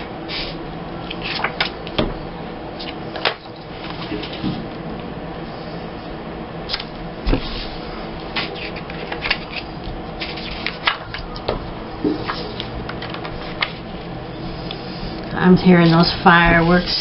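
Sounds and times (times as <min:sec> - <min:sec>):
paper rustling: 0:08.4 - 0:11.2.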